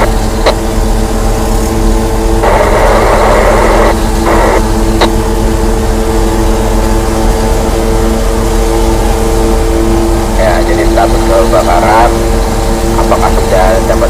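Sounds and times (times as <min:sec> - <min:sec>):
two-way radio static bursts: 0:00.0 - 0:00.7, 0:02.4 - 0:05.2, 0:10.4 - 0:14.0
car engine running: 0:00.0 - 0:14.0
radio click: 0:04.3 - 0:05.2.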